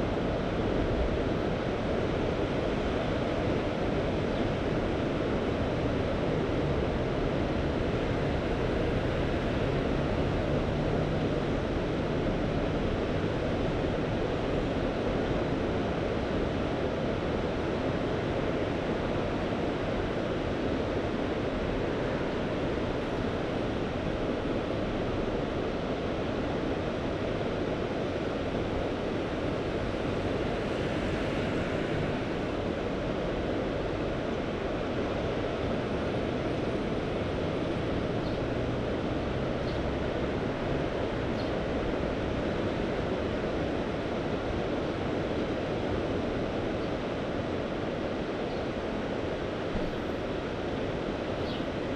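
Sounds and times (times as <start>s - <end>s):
sea surf washing: 28.4s - 34.7s.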